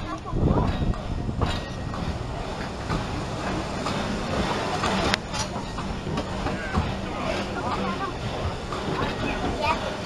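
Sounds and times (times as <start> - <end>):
steam train wheels rumbling on rail: 0.0 - 10.0.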